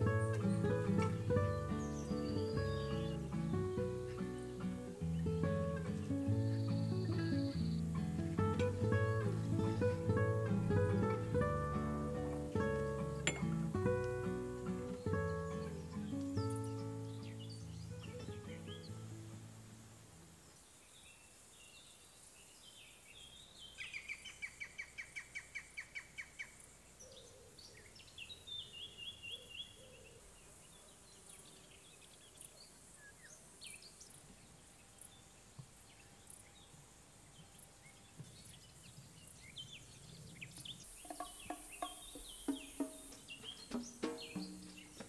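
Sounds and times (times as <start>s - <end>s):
bird singing high notes: 0.0s - 14.0s
bird trill: 0.0s - 19.0s, 39.7s - 45.0s
faint bird chirps: 0.0s - 19.8s, 20.6s - 45.0s
soft background hiss: 0.0s - 45.0s.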